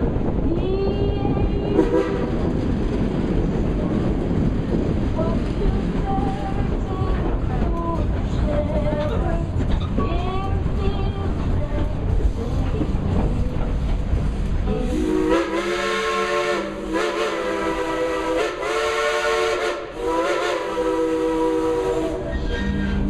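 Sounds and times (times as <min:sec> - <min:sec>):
train running rumble: 0:00.0 - 0:23.0
steam locomotive chime whistle: 0:14.7 - 0:22.9.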